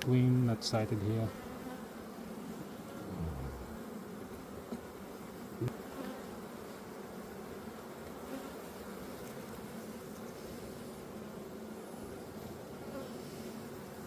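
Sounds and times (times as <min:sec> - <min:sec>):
honey bees buzzing: 0:00.3 - 0:14.0.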